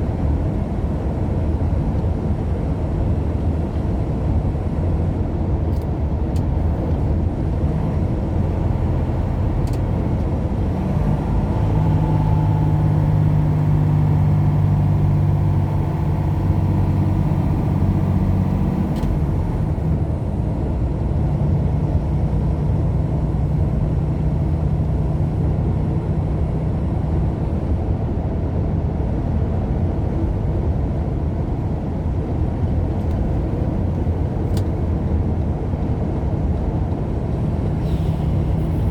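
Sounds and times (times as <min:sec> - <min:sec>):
road noise: 0:00.0 - 0:38.9
truck engine drone: 0:00.0 - 0:38.9.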